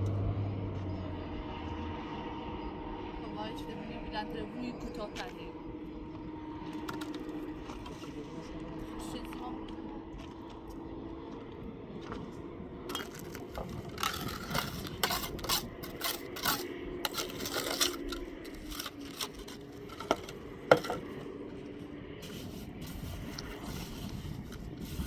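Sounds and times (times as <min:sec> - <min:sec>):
hard objects clinking and knocking: 0:12.9 - 0:21.2.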